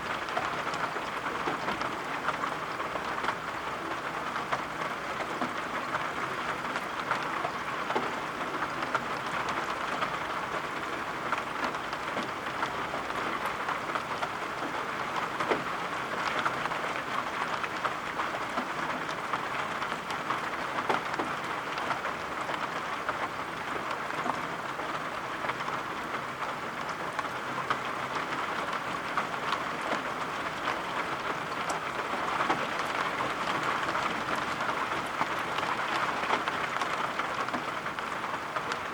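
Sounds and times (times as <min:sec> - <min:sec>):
steady rain: 0:00.0 - 0:38.9
raindrops ticking: 0:00.1 - 0:38.9.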